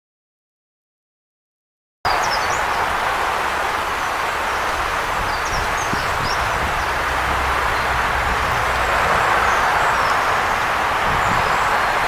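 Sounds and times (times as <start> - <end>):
small birds chirping: 2.1 - 3.2, 3.9 - 8.0
river water rushing: 2.1 - 12.0.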